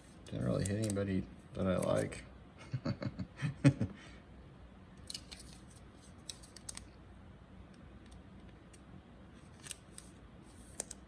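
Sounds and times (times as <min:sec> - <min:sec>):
cards clicking and scraping: 0:00.4 - 0:01.0, 0:01.7 - 0:02.1, 0:05.0 - 0:06.9, 0:09.4 - 0:11.0.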